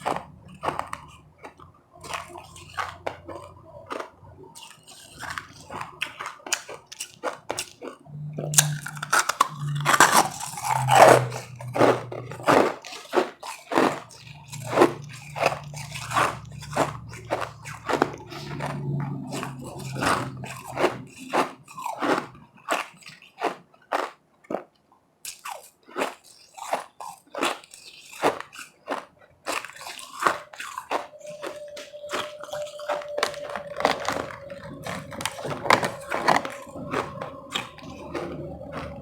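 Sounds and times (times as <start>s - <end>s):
crunching and chewing ice: 0.0s - 39.0s
faint steady hum: 30.2s - 39.0s.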